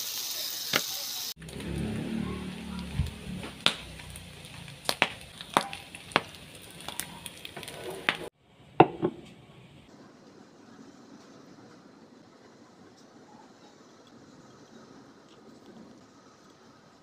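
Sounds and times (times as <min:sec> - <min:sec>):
meat sizzling in oil: 0:00.0 - 0:08.3
faint hiss: 0:00.0 - 0:08.7
spatula stirring in pan: 0:02.8 - 0:08.3.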